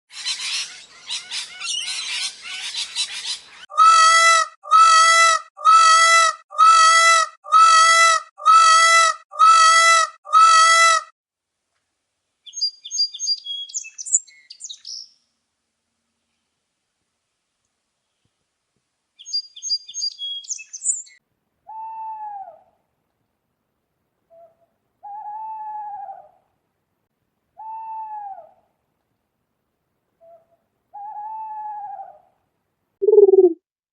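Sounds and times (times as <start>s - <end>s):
high bird chirps: 12.5s - 15.1s, 19.2s - 21.2s, 33.0s - 33.6s
drawn-out bird calls: 33.0s - 33.6s
rapid bird chattering: 33.0s - 33.6s.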